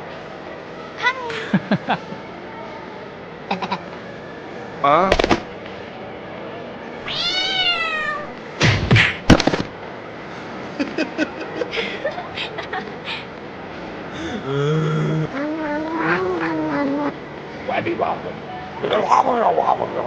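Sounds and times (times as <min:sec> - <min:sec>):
loud sharp knocks: 0:05.1 - 0:05.5, 0:08.6 - 0:09.7
cat meowing: 0:07.0 - 0:08.4, 0:15.3 - 0:17.1.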